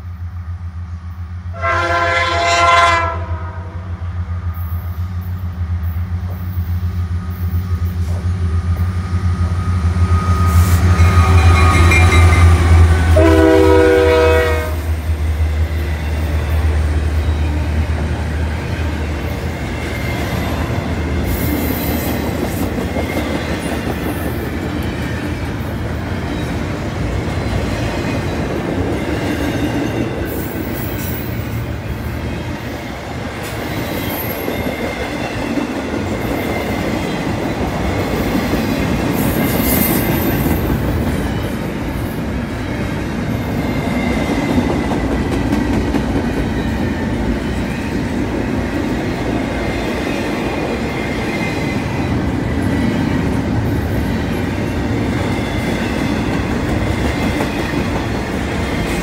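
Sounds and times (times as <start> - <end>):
diesel locomotive engines: 0.0 - 59.0
train horn blasts: 1.5 - 3.9, 10.4 - 15.0
wheels clickety-clack: 21.7 - 25.2, 43.8 - 46.8, 55.6 - 59.0.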